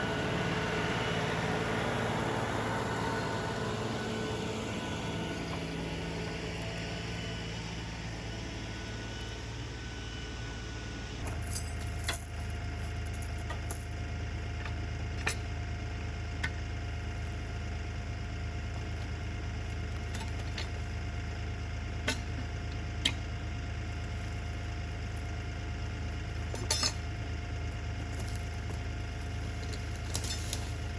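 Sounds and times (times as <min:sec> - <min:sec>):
diesel tractor engine running: 0:00.0 - 0:30.9
sharp clinks and knocks: 0:11.2 - 0:14.0.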